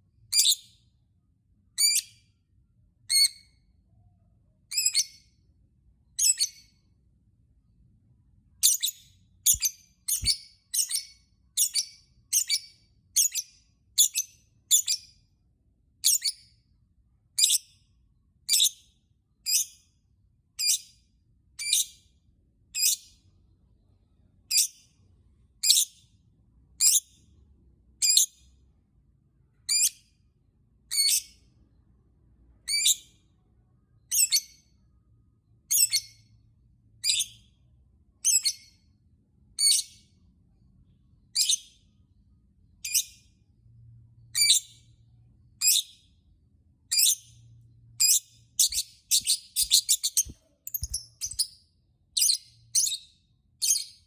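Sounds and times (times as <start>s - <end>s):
lovebird chirping: 0.3s - 0.7s, 4.7s - 5.3s, 6.2s - 6.7s, 8.6s - 15.1s, 37.0s - 37.5s, 38.2s - 38.8s, 42.8s - 43.3s, 44.4s - 44.8s, 46.9s - 47.4s, 48.0s - 51.6s, 52.2s - 54.0s.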